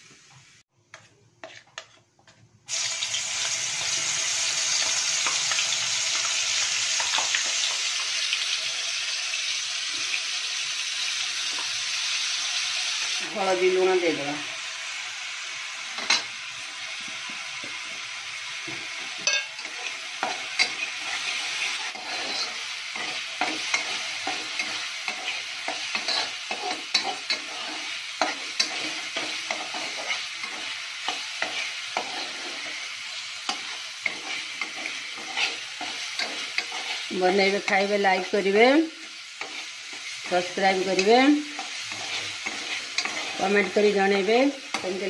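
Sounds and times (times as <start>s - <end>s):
spatula scraping pan: 0.9s - 2.4s, 18.6s - 45.0s
paste sizzling in hot oil: 2.7s - 45.0s.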